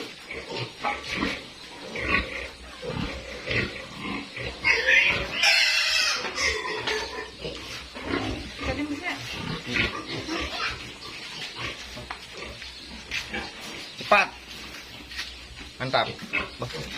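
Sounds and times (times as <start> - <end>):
piglet squealing: 4.6 - 7.3, 10.0 - 10.8.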